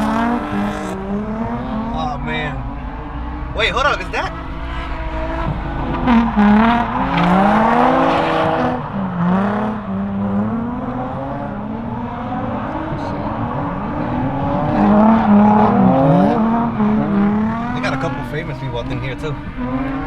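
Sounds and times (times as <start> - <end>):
rush of noise: 0.0 - 15.2
car engine revving: 0.0 - 20.0.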